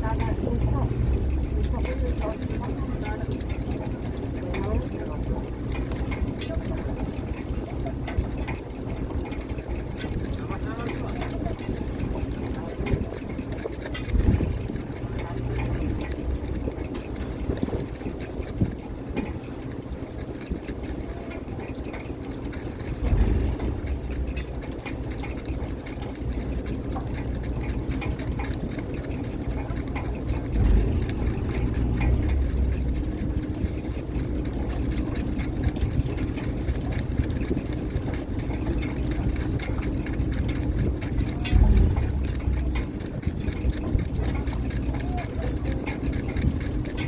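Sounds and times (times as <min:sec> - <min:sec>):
boat engine humming: 0:00.0 - 0:47.0
low thumps: 0:14.0 - 0:17.9, 0:22.8 - 0:25.8, 0:29.6 - 0:36.2.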